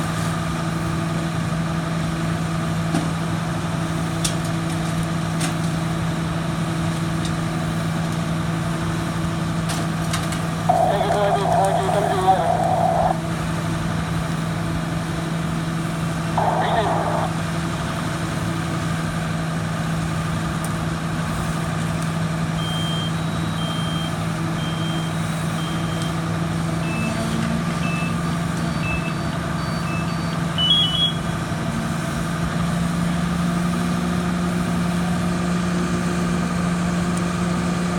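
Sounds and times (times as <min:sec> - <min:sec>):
fire truck engine running: 0:00.0 - 0:37.9
reversing alarm beeping: 0:22.6 - 0:26.2, 0:27.8 - 0:31.4
shorter beeps: 0:28.7 - 0:31.4.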